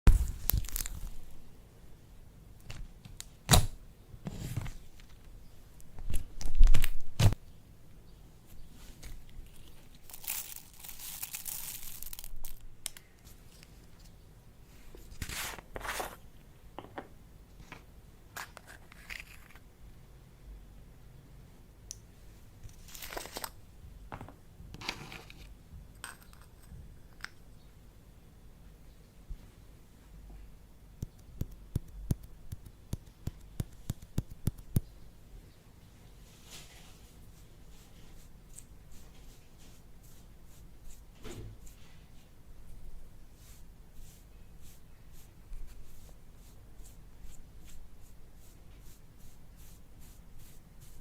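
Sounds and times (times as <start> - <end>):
slime crackling and rustling: 9.4 - 12.6.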